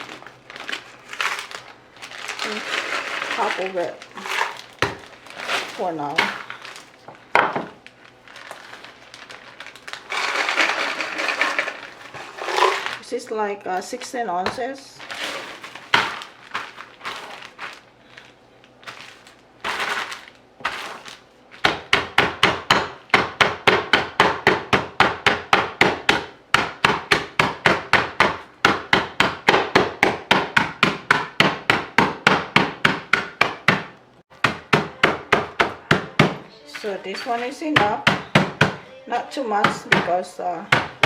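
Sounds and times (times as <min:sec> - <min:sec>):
knife chopping on cutting board: 0:21.6 - 0:36.4, 0:37.2 - 0:38.9, 0:39.6 - 0:41.0.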